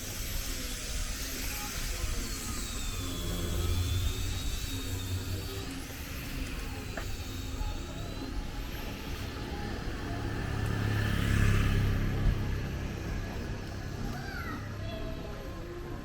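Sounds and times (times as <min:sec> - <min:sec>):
street background noise: 0:00.0 - 0:16.0
vehicle engine passing: 0:09.3 - 0:14.0.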